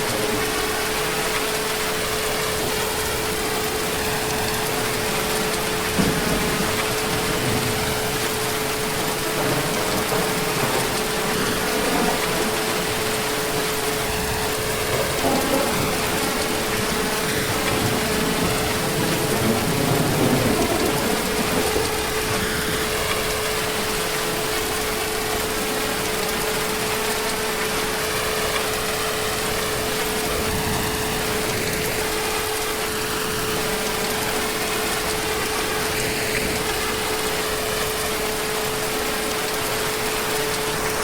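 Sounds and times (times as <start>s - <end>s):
distant thunder rumble: 0.0s - 32.4s
heavy rain: 0.0s - 41.0s.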